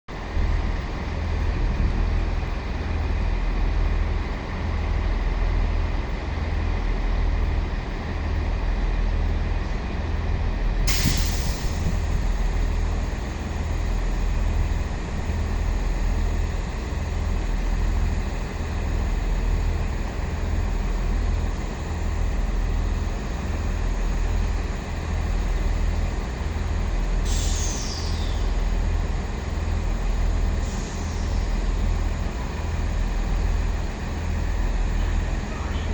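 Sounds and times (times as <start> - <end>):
diesel locomotive engines rumbling: 0.1 - 35.9
air hiss: 10.9 - 12.8, 27.2 - 28.5
short falling squeal: 27.5 - 28.5.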